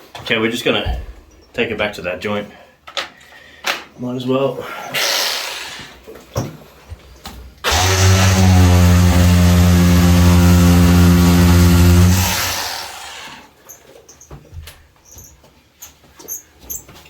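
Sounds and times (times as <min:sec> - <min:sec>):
electric power tool running: 0:07.6 - 0:13.5.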